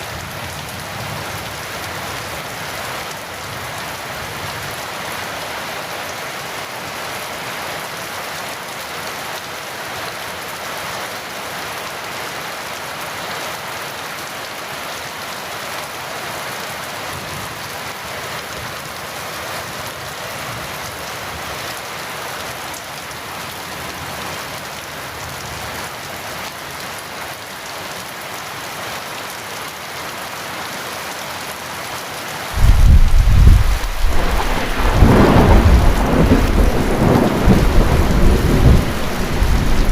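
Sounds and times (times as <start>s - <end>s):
heavy rain falling: 0.0s - 39.9s
thunderclap rumbling: 32.6s - 39.9s.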